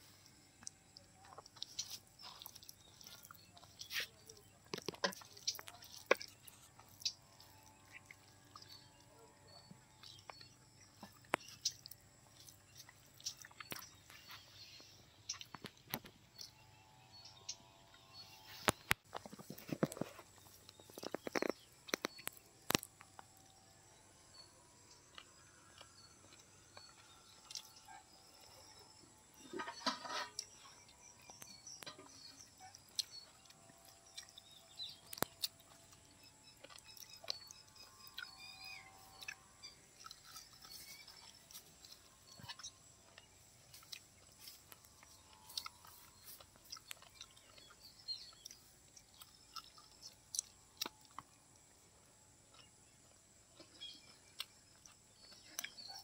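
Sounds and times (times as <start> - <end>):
man chewing with mouth smacks: 0.0 - 16.6, 17.2 - 23.6, 24.3 - 56.0.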